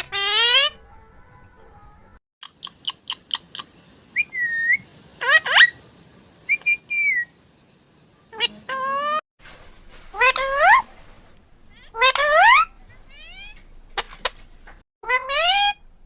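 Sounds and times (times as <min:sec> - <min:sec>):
parrot chirping: 0:00.0 - 0:00.9, 0:02.4 - 0:05.8, 0:06.4 - 0:07.4, 0:08.3 - 0:09.2, 0:10.1 - 0:16.0
parrot whistling: 0:02.4 - 0:05.8, 0:06.5 - 0:07.4, 0:11.7 - 0:13.6, 0:15.0 - 0:15.8.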